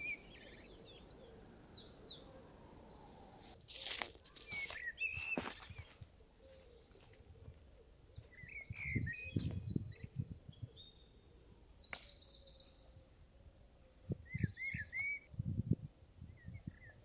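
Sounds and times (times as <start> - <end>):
birds chirping: 0.0 - 15.3
songbirds trilling: 0.0 - 15.3.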